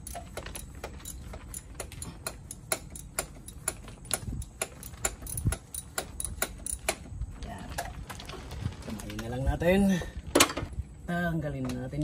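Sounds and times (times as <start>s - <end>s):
ratchet wrench clicking: 0.0s - 7.1s.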